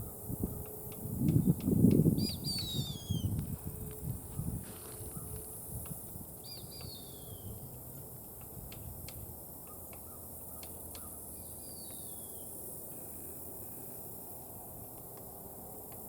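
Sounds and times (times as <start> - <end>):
woodpecker bill tapping nut: 6.6 - 7.0, 8.4 - 11.2.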